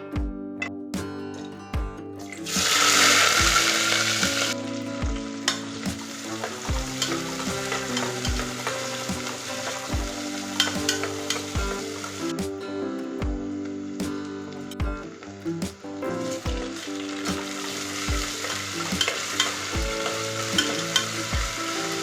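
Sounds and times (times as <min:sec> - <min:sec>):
food sizzling in hot oil: 0:02.5 - 0:04.6, 0:05.4 - 0:12.3, 0:16.7 - 0:22.0.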